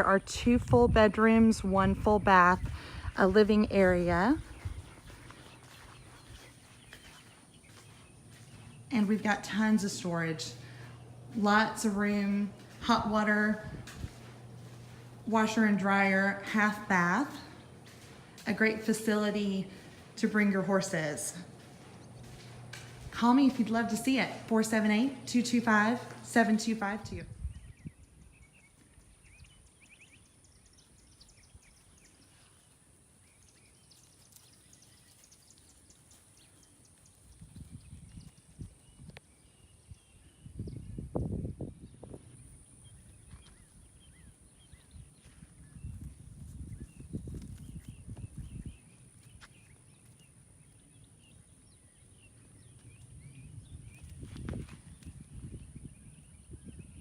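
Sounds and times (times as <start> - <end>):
small birds chirping: 1.9 - 57.0
soft bird chirps: 4.4 - 9.0, 27.4 - 41.2
low rumbling thuds: 10.5 - 15.8, 16.5 - 25.3.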